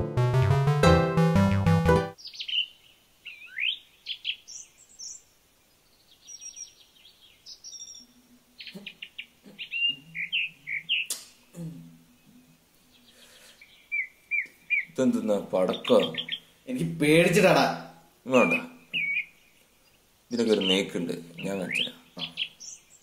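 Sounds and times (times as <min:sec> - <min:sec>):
music: 0:00.0 - 0:02.2
small birds chirping: 0:02.2 - 0:23.0.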